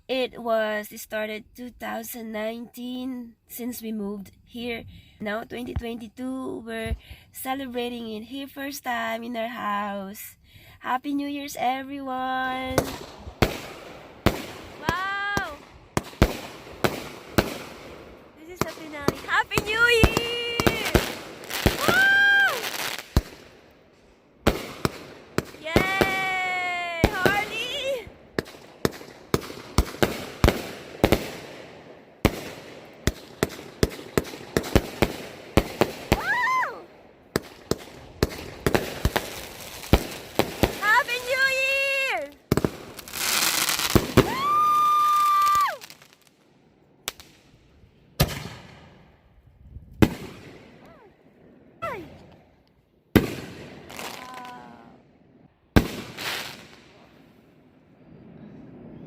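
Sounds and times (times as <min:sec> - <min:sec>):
fireworks banging: 0:11.6 - 0:46.4, 0:47.0 - 0:49.2, 0:49.8 - 0:59.0.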